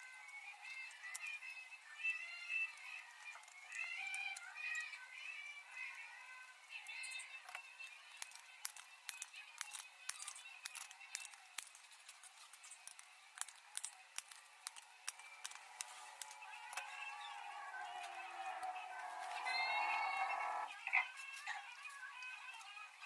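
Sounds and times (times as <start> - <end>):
snips and clicks on tin-plate: 6.8 - 17.3.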